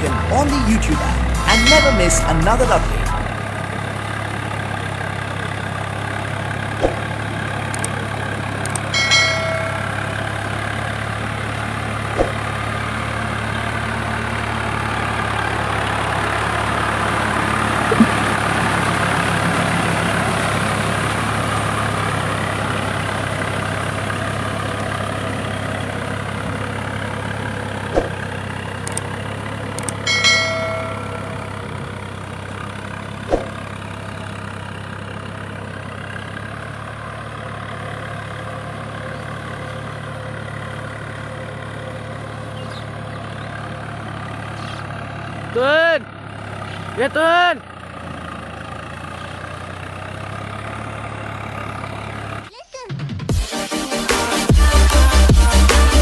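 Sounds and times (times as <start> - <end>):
tractor diesel engine running: 0.0 - 56.0
short metallic dings: 8.8 - 10.2, 30.0 - 31.6.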